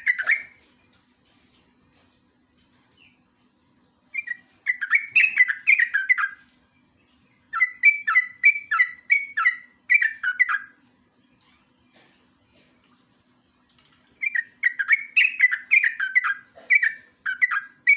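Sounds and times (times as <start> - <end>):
bird singing clear chirps: 0.0 - 0.7, 4.1 - 11.8, 14.1 - 17.9.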